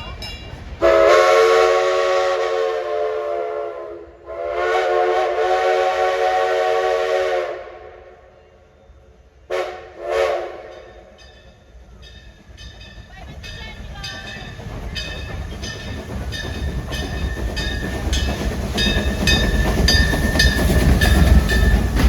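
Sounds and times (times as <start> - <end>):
steam train chime whistle: 0.8 - 8.6, 9.5 - 11.7.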